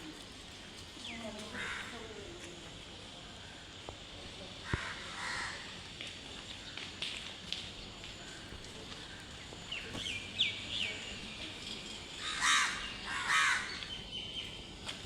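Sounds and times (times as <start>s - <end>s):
crow cawing: 1.6s - 2.0s, 4.6s - 5.7s, 12.2s - 13.8s.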